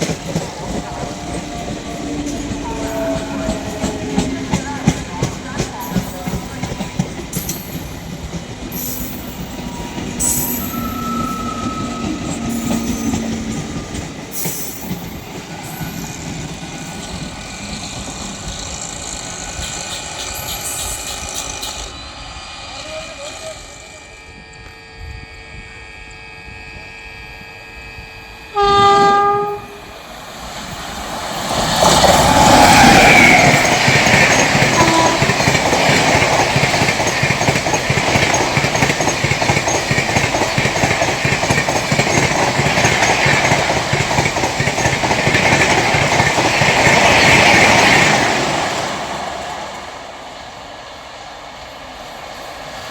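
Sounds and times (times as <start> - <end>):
train passing at speed: 0.0 - 52.9
train horn: 0.6 - 7.0, 9.4 - 14.6, 22.8 - 30.1, 34.5 - 36.1.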